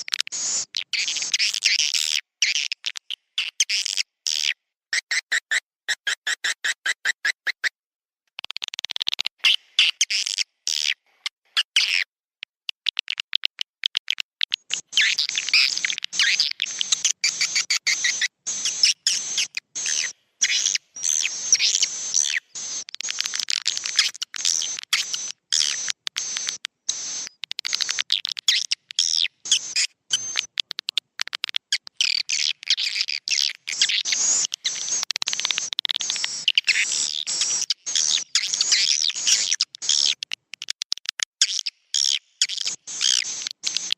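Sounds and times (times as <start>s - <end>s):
swiftlets twittering: 14.5s - 31.0s, 31.9s - 40.2s.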